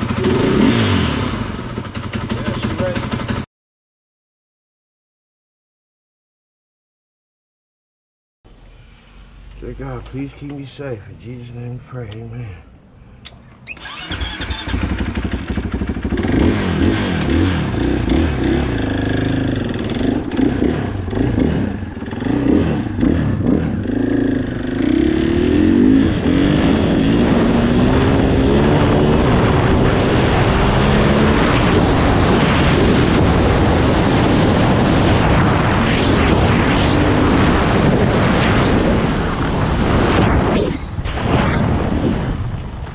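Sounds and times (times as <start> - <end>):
motorcycle engine revving: 0.0 - 3.5, 13.7 - 40.0
wind on microphone: 25.5 - 42.9.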